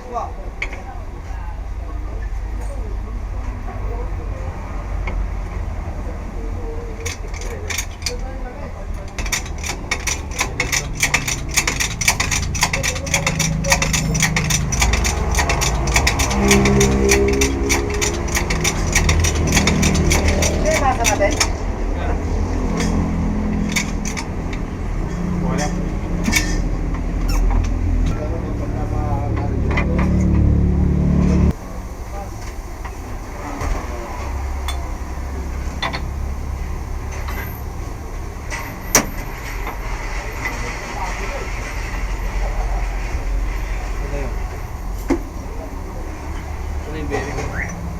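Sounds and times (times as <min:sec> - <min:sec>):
rapid mechanical clicking: 0:06.9 - 0:21.7, 0:22.6 - 0:27.8.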